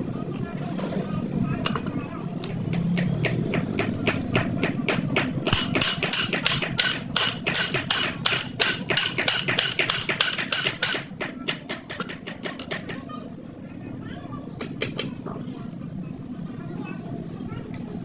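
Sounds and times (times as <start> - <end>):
hammer striking metal: 2.7 - 13.0.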